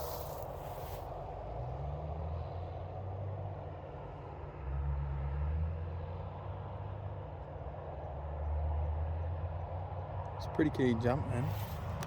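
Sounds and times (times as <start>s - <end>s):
short hiss: 0.0s - 1.1s.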